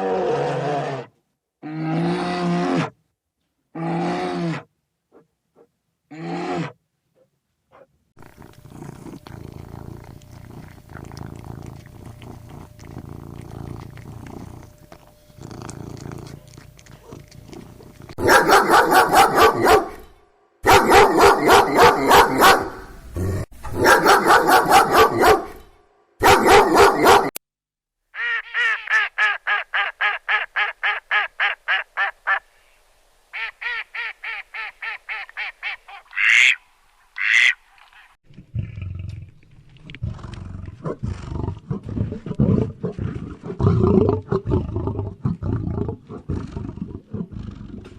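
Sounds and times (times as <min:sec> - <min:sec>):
low rough animal rumble: 0:08.2 - 0:18.2
rapidly repeated animal calls: 0:37.2 - 0:38.1.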